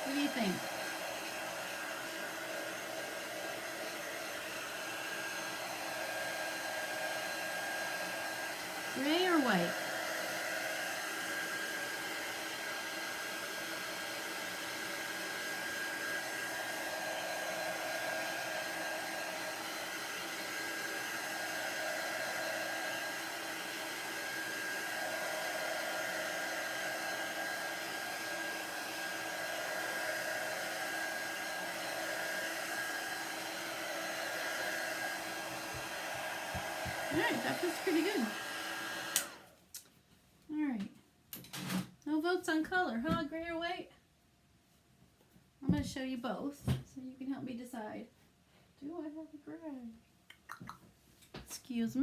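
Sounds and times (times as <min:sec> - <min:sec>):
heat tool blowing with whine: 0:00.0 - 0:39.4.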